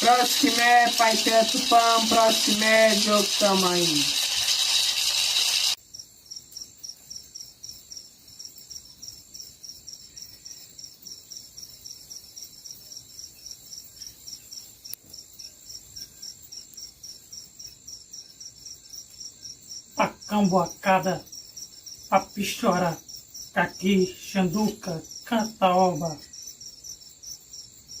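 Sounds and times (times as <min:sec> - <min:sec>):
loud hiss: 0:00.0 - 0:05.8
insect chirping: 0:00.0 - 0:28.0.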